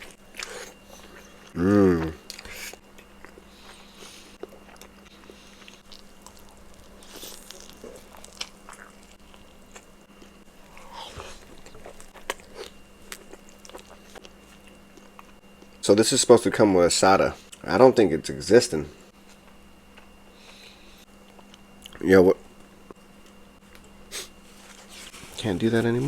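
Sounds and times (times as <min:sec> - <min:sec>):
person chewing food: 0:00.0 - 0:15.8.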